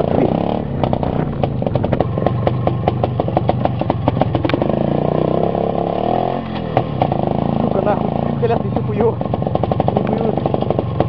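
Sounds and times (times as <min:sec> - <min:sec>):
two-stroke motorcycle engine: 0:00.0 - 0:11.0
rapid clatter of knocks: 0:00.8 - 0:04.8, 0:06.6 - 0:07.4, 0:08.5 - 0:11.0.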